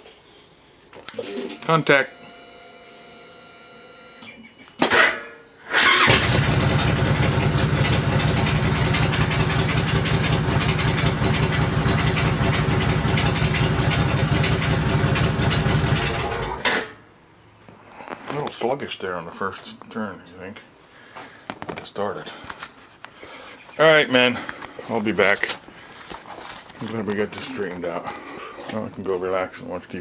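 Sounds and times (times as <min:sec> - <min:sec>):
motorcycle starter cranking: 0:05.7 - 0:16.8
motorcycle engine running: 0:06.0 - 0:16.6.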